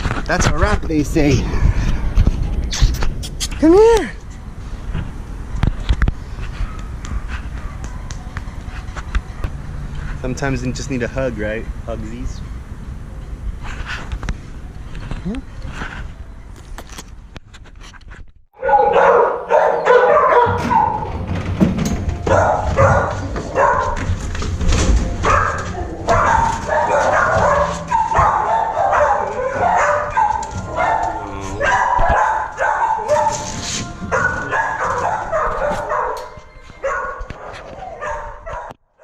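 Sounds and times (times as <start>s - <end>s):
dogs barking and yipping: 6.3s - 9.7s, 18.6s - 38.8s.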